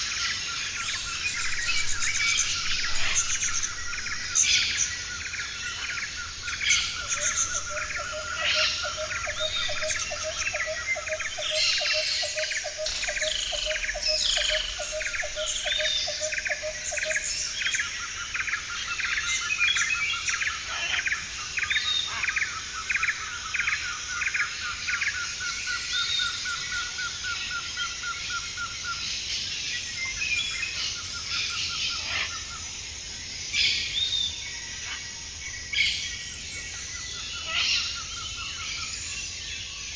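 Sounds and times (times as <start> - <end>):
lower repeated bird call: 0.0 - 17.5.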